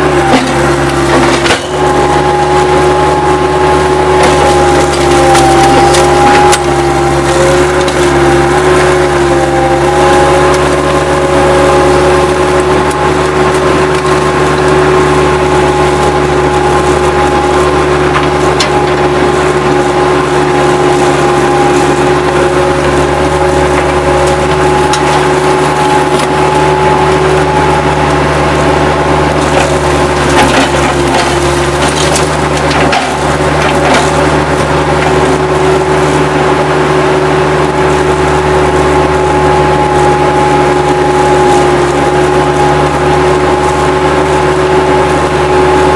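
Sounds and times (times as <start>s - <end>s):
wood debris cracking: 0.0s - 36.6s
diesel loader engine under load: 0.0s - 45.9s
hydraulic whine: 0.0s - 45.9s.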